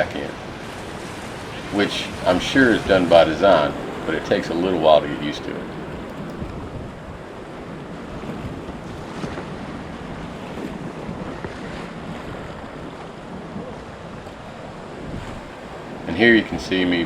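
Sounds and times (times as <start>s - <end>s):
whitewater rushing: 0.0s - 6.5s, 13.8s - 17.0s
wind buffeting microphone: 0.0s - 17.0s.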